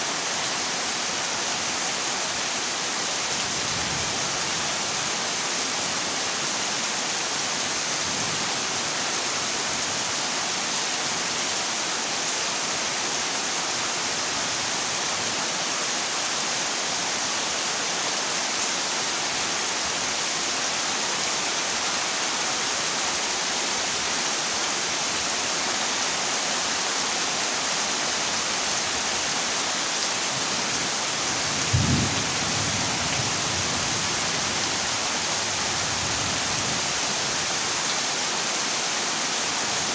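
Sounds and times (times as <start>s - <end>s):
heavy rain on a metal roof: 0.0s - 39.9s
low thunderclap: 31.5s - 33.8s.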